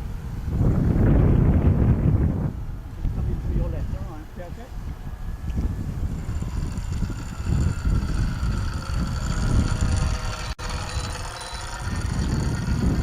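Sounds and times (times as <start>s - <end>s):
electric motor and propeller whine: 0.0s - 13.0s
wind buffeting microphone: 0.0s - 13.0s
high beeps from transmitter: 10.9s - 11.7s.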